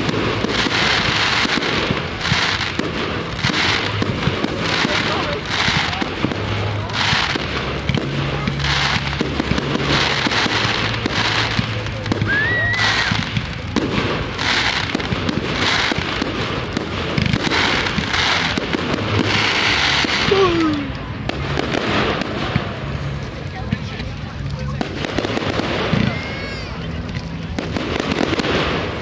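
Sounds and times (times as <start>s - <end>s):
aerial fireworks bursting and crackling: 0.0s - 29.0s.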